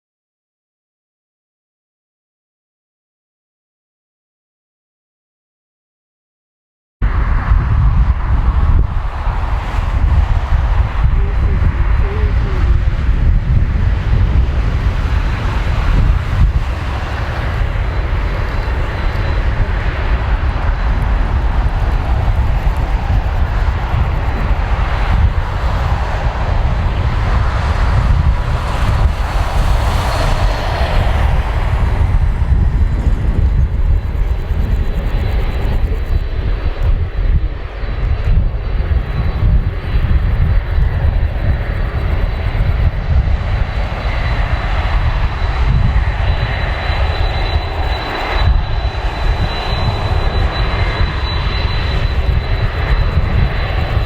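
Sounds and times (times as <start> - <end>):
high jet engine whine: 7.0 - 54.0
jet engines roaring: 7.0 - 54.0.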